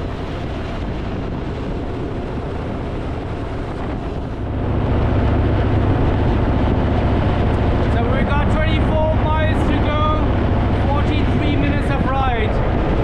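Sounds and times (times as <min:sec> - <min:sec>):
wind noise on microphone: 0:00.0 - 0:13.0
motorcycle engine running: 0:01.8 - 0:11.8.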